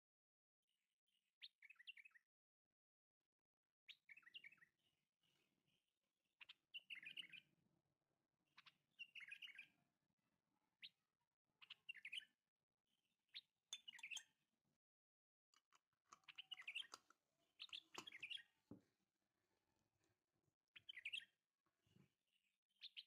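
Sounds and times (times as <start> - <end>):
faint bird chirping: 3.9 - 5.8, 6.4 - 7.5, 8.4 - 9.9, 10.8 - 11.0, 11.6 - 12.4, 13.0 - 14.4, 16.1 - 18.8, 20.7 - 23.0.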